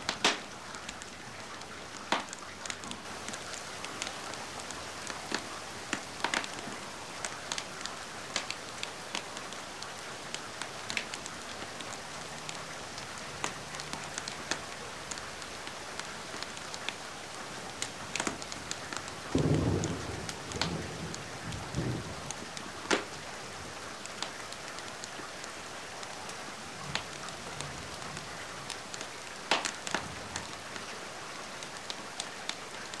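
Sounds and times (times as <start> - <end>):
wood fire crackling and popping: 0.0 - 1.1, 1.9 - 9.6, 10.3 - 12.0, 17.8 - 23.2, 26.9 - 27.2, 28.7 - 30.6
steady rain hiss: 0.0 - 33.0.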